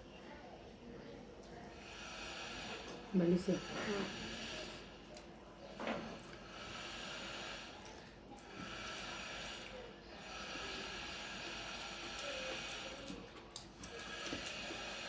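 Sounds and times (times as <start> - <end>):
hissing breath close to microphone: 1.7 - 5.1, 5.8 - 13.2, 13.9 - 15.0.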